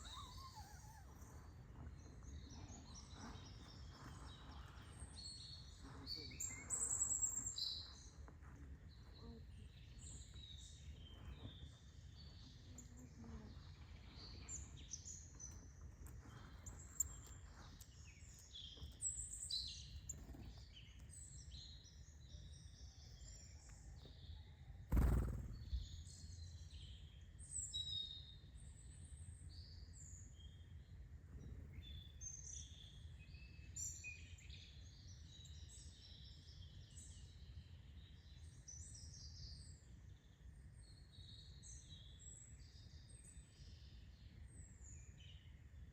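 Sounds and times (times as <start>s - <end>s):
small birds chirping and twittering: 0.0s - 45.9s
faint low rumble: 24.9s - 26.2s.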